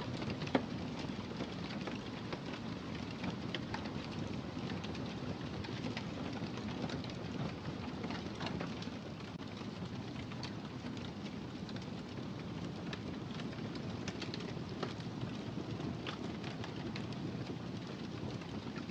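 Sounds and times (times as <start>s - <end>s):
wood fire crackling: 0.0s - 18.9s
fire pops and snaps: 5.7s - 18.9s.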